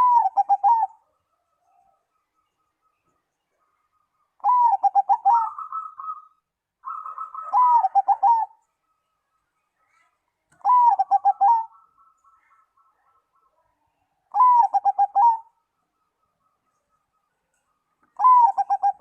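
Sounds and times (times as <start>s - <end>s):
dove cooing: 0.0s - 2.0s, 4.4s - 8.6s, 10.0s - 13.6s, 14.3s - 15.6s, 18.0s - 19.0s.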